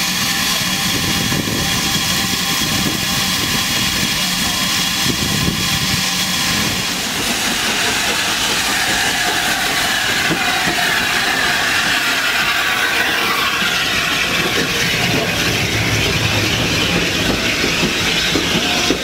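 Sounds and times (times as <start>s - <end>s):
train rumbling and clattering: 0.0s - 19.0s.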